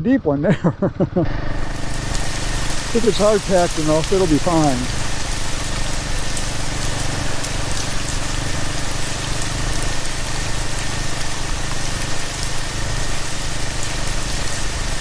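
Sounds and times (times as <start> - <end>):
motorcycle engine running: 0.0 - 15.0
rain falling: 0.5 - 15.0.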